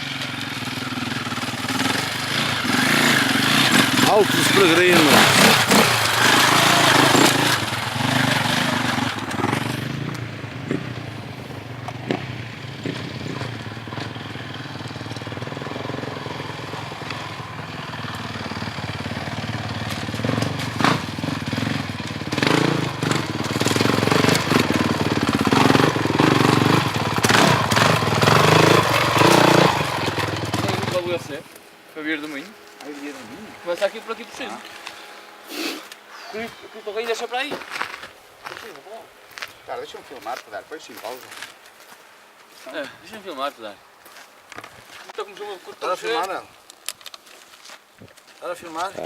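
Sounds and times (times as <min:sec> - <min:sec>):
motorcycle engine running: 0:00.0 - 0:31.4.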